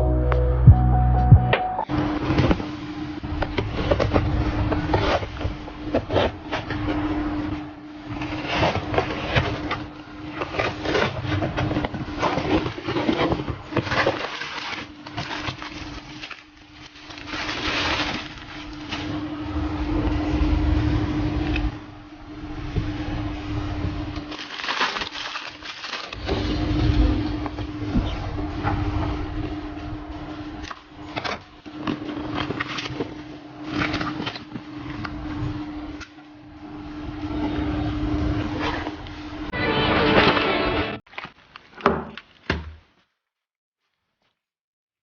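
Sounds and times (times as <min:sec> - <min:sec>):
packaging rustling: 0:10.4 - 0:19.2, 0:24.2 - 0:26.5.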